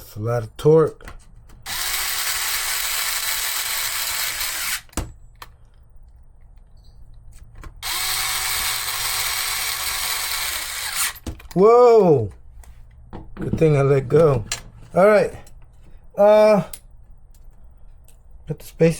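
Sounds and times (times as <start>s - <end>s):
electric drill running: 1.7s - 4.9s, 7.8s - 11.2s
drill click: 7.8s - 11.3s.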